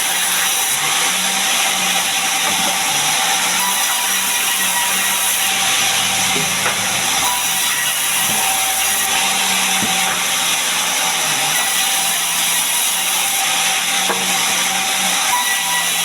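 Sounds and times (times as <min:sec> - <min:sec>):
saw cutting log: 0:00.0 - 0:16.0.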